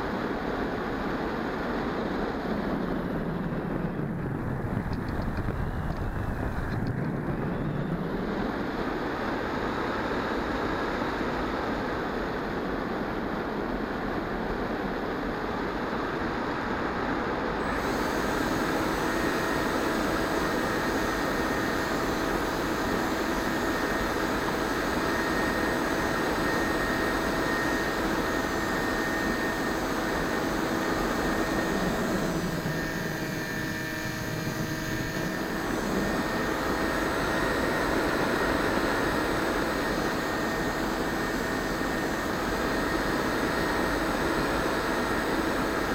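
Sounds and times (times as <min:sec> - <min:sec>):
electric motor propeller hum: 0:17.6 - 0:45.9.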